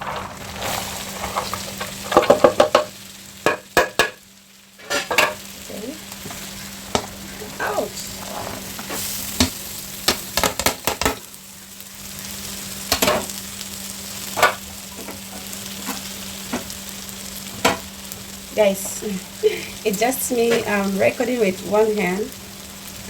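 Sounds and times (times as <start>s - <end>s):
utensil scraping a pan: 0.0s - 2.8s, 4.8s - 5.4s, 6.3s - 9.2s
vegetables sizzling in a pan: 0.0s - 23.0s.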